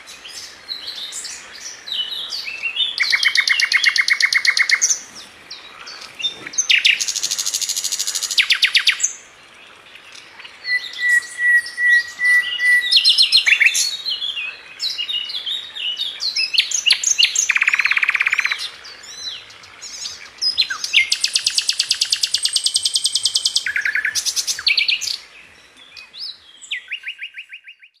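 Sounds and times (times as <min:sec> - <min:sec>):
flycatcher singing: 0:10.4 - 0:25.2.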